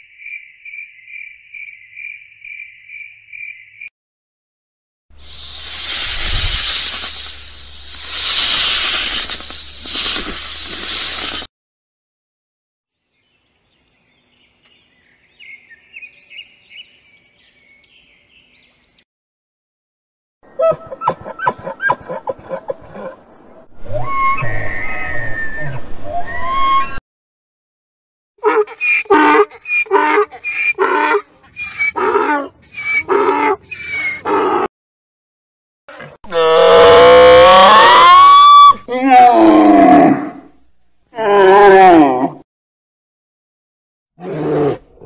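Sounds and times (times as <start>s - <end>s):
bird chirping: 13.0s - 19.0s
animal calling: 28.4s - 34.7s.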